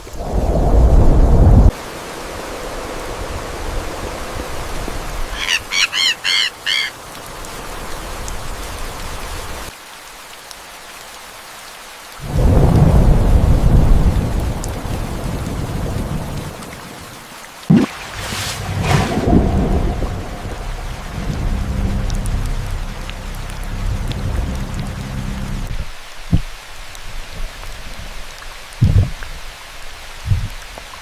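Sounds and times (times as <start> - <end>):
steady rain: 0.0 - 31.0
thunder rumbling: 0.1 - 1.7, 12.2 - 16.6, 18.6 - 25.9
bird calling: 5.3 - 7.0.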